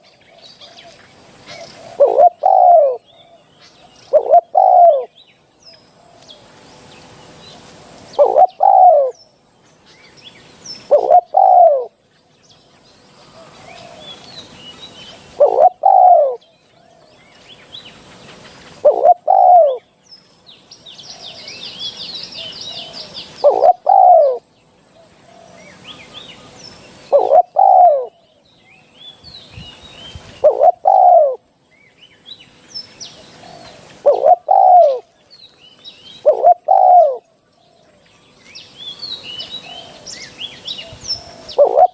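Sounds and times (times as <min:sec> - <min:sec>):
high bird trill: 0:00.0 - 0:05.1, 0:08.1 - 0:09.3, 0:10.6 - 0:12.0, 0:13.2 - 0:16.5, 0:18.6 - 0:19.9, 0:20.8 - 0:24.5, 0:25.6 - 0:28.2, 0:28.8 - 0:31.4, 0:32.1 - 0:35.1, 0:35.9 - 0:37.3, 0:38.6 - 0:41.9
dove cooing: 0:00.0 - 0:05.2, 0:08.1 - 0:09.2, 0:10.8 - 0:12.0, 0:13.2 - 0:17.1, 0:18.3 - 0:19.9, 0:21.1 - 0:24.4, 0:25.0 - 0:28.2, 0:30.2 - 0:31.5, 0:33.1 - 0:35.2, 0:36.1 - 0:37.3, 0:39.1 - 0:41.9
small birds chirping: 0:00.0 - 0:41.9.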